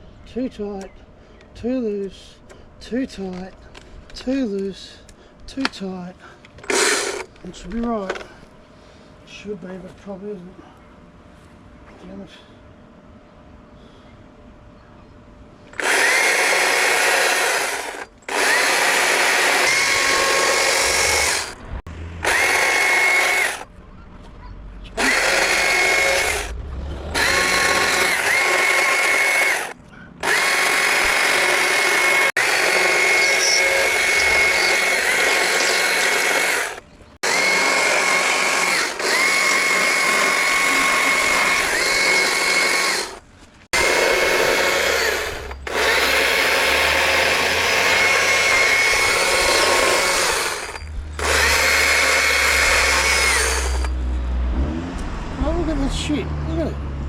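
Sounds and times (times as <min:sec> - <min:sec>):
battery chainsaw motor whine: 0:15.7 - 0:23.7, 0:25.0 - 0:54.0.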